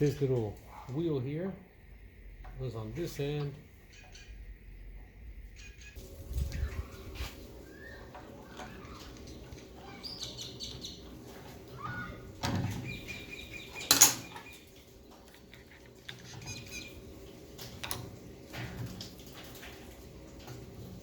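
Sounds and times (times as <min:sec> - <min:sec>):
metal parts knocking and clicking: 0:13.9 - 0:14.3.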